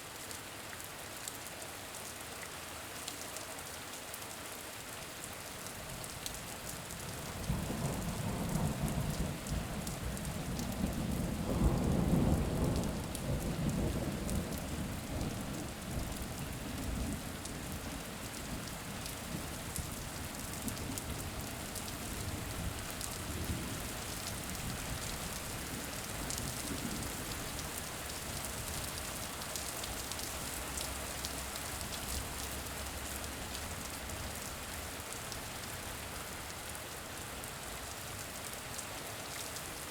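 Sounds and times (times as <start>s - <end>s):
steady rain: 0.0s - 39.9s
low roll of thunder: 7.3s - 17.8s.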